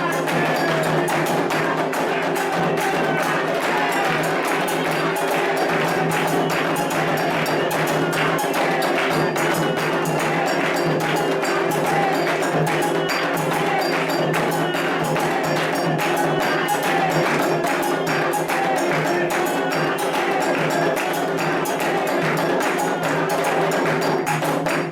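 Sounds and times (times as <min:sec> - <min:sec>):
hand drums playing: 0:00.0 - 0:24.9
metal bell rhythm: 0:00.0 - 0:24.9.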